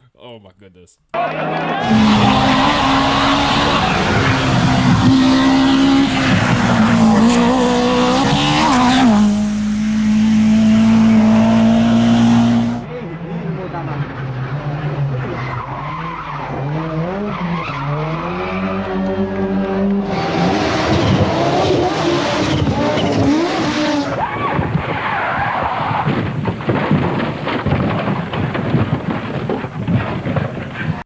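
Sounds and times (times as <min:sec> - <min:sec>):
rally car engine revving: 0:01.7 - 0:12.9, 0:13.8 - 0:31.0
tyres skidding: 0:01.8 - 0:12.9.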